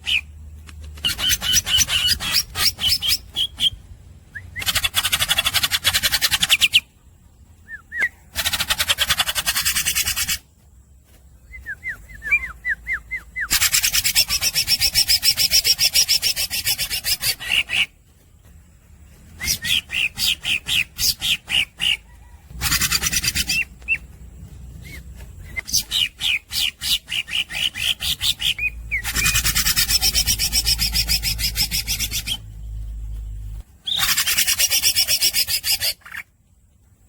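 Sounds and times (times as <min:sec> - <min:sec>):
bird buzzy rattling song: 0:00.0 - 0:37.0
bird whistled chirps: 0:07.6 - 0:08.4, 0:11.4 - 0:17.9, 0:19.3 - 0:22.0, 0:24.8 - 0:32.5.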